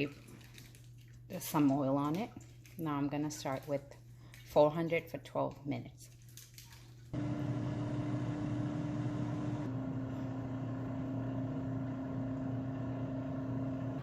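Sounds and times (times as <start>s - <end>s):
air fryer fan humming: 7.2s - 14.0s.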